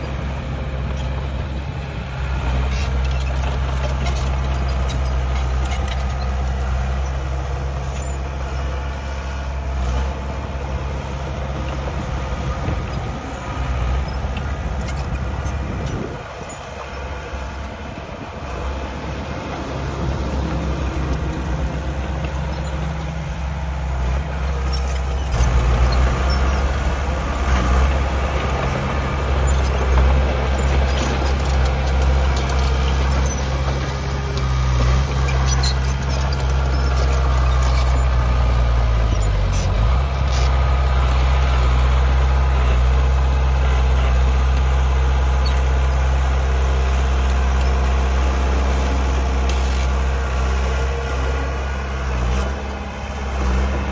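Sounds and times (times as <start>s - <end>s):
heavy diesel machinery engine: 0.0s - 53.9s
metallic clanks and squeaks: 2.6s - 8.8s, 12.6s - 17.3s, 22.1s - 23.4s, 24.0s - 40.6s, 45.3s - 45.9s.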